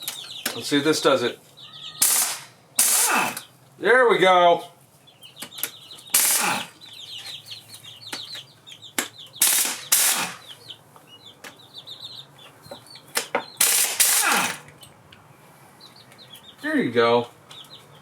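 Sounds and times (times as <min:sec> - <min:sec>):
pneumatic impact wrench hammering: 0:02.0 - 0:03.5, 0:06.1 - 0:06.7, 0:09.4 - 0:10.5, 0:13.6 - 0:14.7.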